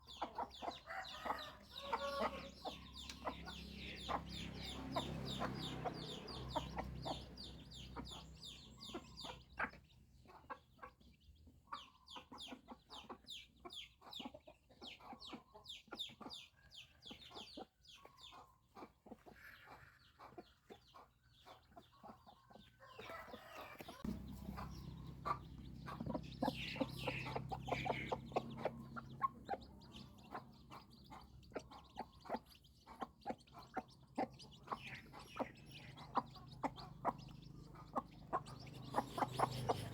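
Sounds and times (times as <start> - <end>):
chickens clucking: 0.0 - 39.9
chicks peeping: 0.0 - 39.9.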